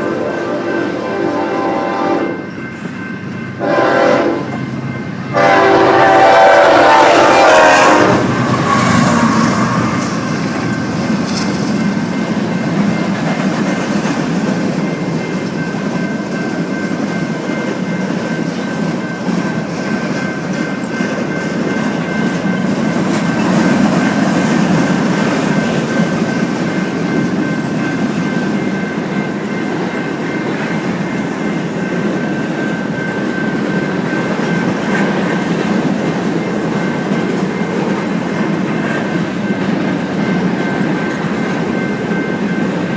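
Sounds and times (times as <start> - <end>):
train horn: 0.0 - 2.5, 3.5 - 4.6, 5.3 - 10.3
train wheels rumbling on rails: 0.0 - 42.9.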